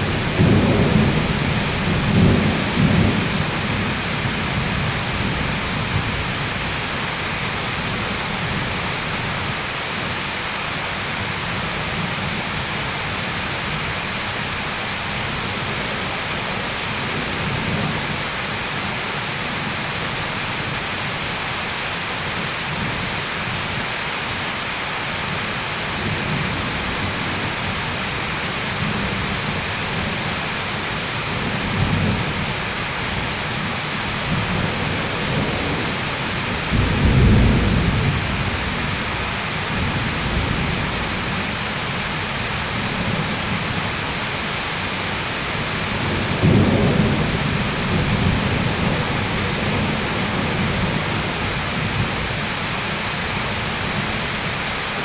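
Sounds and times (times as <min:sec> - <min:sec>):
thunder rolling: 0:00.0 - 0:06.3, 0:34.3 - 0:41.5
heavy rain: 0:00.0 - 0:55.0.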